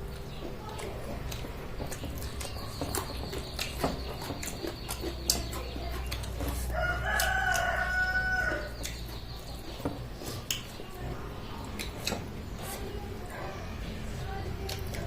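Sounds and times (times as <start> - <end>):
rooster crowing: 6.7 - 8.7.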